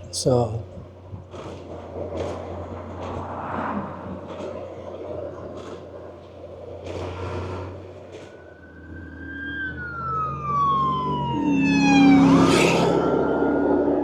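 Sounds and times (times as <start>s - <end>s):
wind and road noise: 0.0s - 14.0s
vehicle rushing past: 1.5s - 6.2s, 6.8s - 14.0s
siren wailing: 7.9s - 14.0s.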